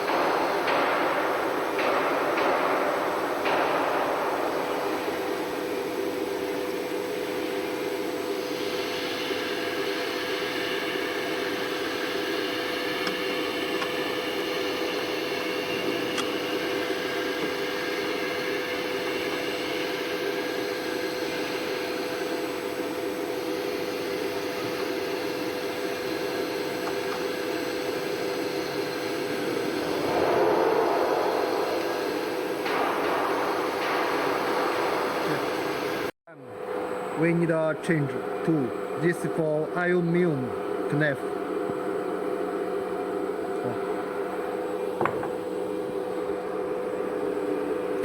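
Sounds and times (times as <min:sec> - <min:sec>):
router machine hum and whine: 0:04.2 - 0:48.0
higher pitched tones: 0:29.2 - 0:36.1.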